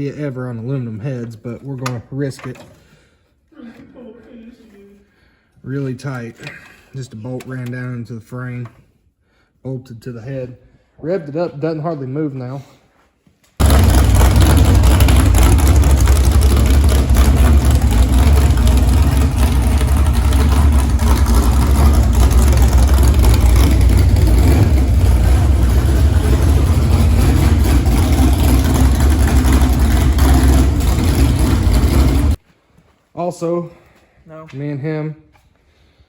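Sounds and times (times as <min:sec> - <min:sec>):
car engine revving: 0:13.6 - 0:32.4.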